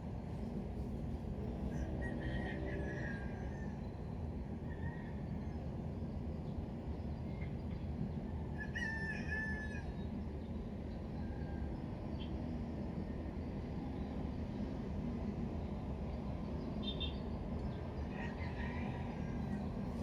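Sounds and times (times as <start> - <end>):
rooster crowing: 1.6 - 3.8, 18.1 - 20.0.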